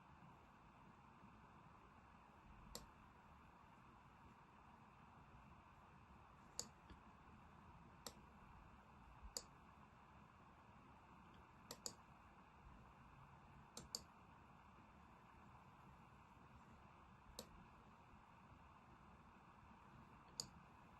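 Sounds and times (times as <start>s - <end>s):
faint computer mouse clicks: 2.7s - 3.0s, 6.6s - 7.0s, 8.0s - 8.2s, 9.3s - 9.5s, 11.3s - 12.0s, 13.8s - 14.1s, 17.4s - 17.6s, 20.3s - 20.6s.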